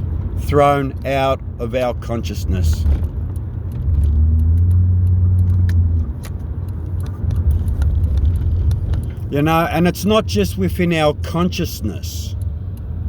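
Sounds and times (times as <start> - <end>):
low motor vehicle rumble: 0.0 - 13.0.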